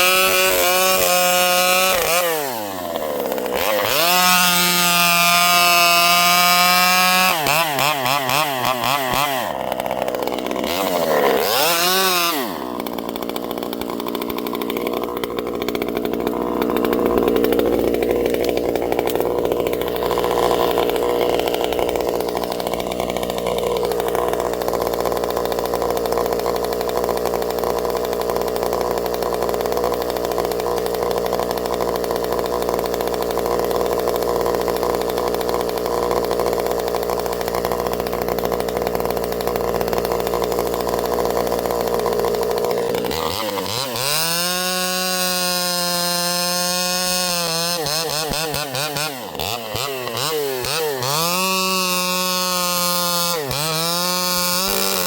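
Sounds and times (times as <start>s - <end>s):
two-stroke chainsaw running: 0.0s - 55.0s.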